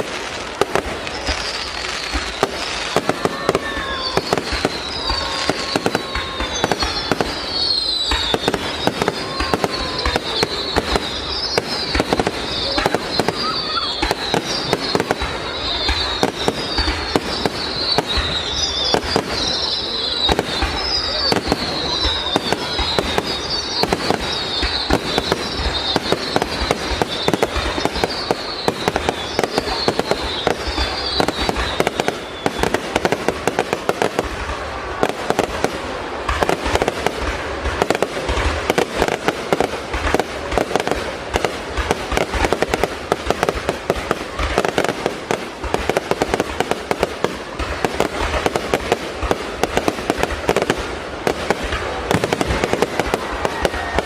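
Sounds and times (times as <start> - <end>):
fireworks bangs and crackling: 0.0 - 54.0
high wavering whistle: 1.4 - 32.7.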